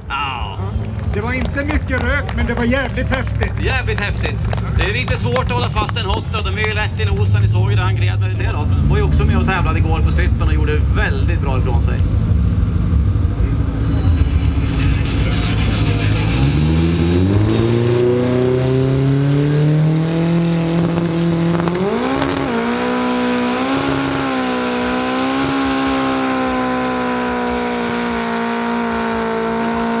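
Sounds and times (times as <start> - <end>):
car engine revving: 0.4 - 30.0.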